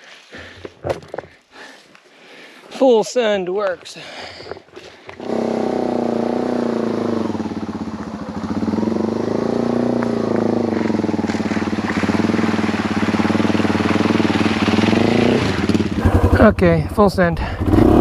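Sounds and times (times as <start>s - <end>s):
motorcycle engine revving: 5.1s - 18.0s.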